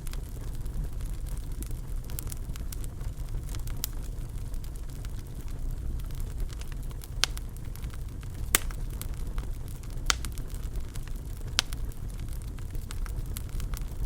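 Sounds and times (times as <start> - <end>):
fire crackling and popping: 0.0 - 14.0
low rumble of fire flames: 0.0 - 14.0.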